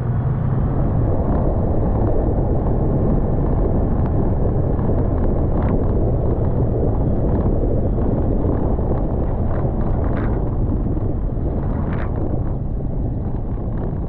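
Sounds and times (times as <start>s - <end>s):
road and engine rumble: 0.0s - 14.0s
wind buffeting the microphone: 0.0s - 14.0s.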